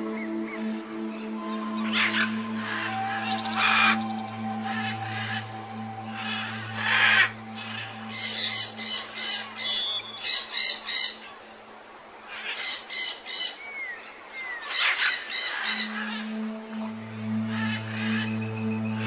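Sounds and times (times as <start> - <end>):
low music drone: 0.0 - 10.6, 15.2 - 19.0
birds squawking: 1.8 - 11.2, 14.5 - 16.2.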